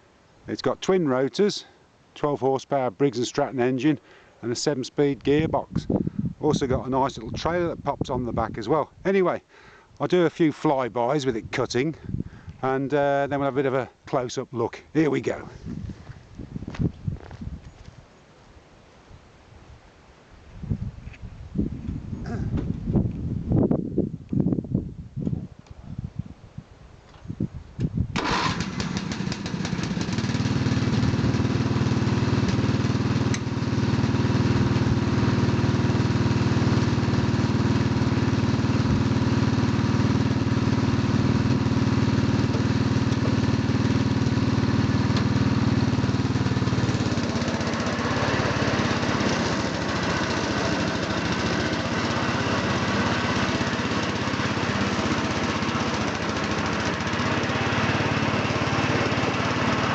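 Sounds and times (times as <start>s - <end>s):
lawn tractor engine mowing: 28.2s - 59.9s.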